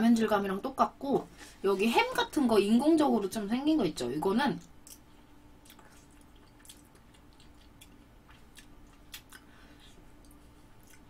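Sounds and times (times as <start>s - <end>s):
faint steady hum: 0.0s - 11.0s
faint close-up chewing: 4.6s - 11.0s
wet mouth clicks: 5.6s - 9.5s.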